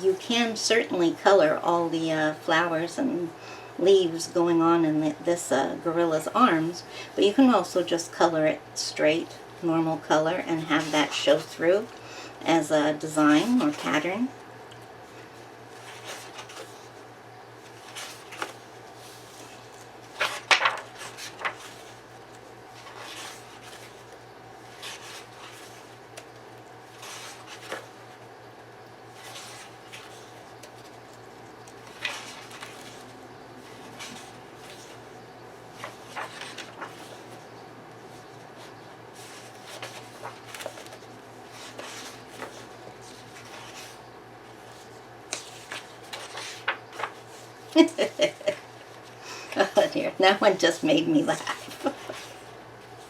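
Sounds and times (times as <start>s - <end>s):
faint steady hum: 0.0s - 53.0s
paper pages rustling: 10.3s - 12.0s, 12.9s - 28.3s, 29.0s - 53.0s.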